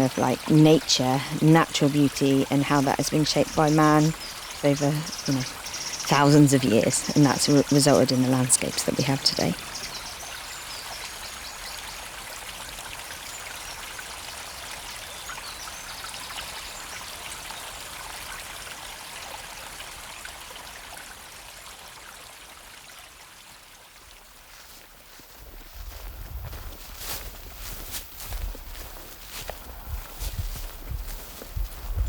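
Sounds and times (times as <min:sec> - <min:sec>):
river water flowing: 0:00.0 - 0:25.4.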